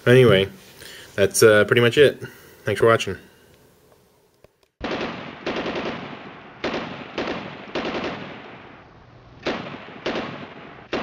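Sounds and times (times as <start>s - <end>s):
automatic gunfire bursts: 4.8s - 8.6s, 9.4s - 11.0s.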